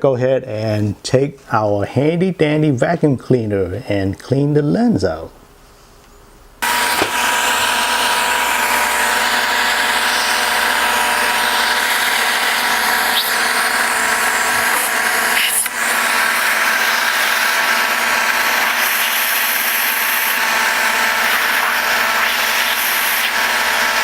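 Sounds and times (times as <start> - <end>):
small vacuum cleaner running: 6.6 - 24.0.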